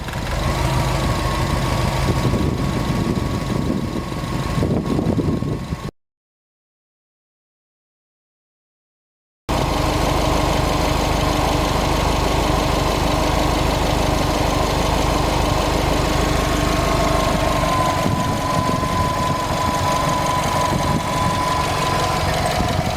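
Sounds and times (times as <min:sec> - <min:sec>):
car engine running: 0:00.0 - 0:05.9, 0:09.5 - 0:22.9
rapid light engine ticking: 0:09.5 - 0:22.9.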